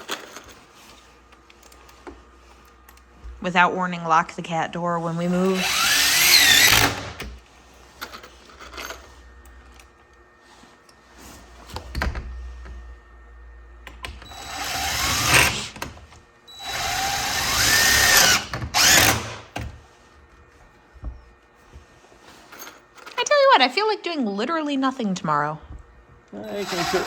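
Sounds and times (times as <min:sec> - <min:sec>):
power drill driving screws: 0:05.1 - 0:07.3, 0:14.2 - 0:19.6, 0:26.4 - 0:27.0.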